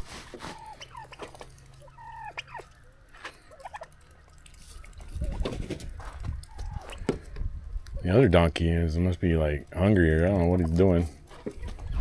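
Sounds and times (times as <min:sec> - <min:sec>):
fowl calling: 0:00.5 - 0:03.9.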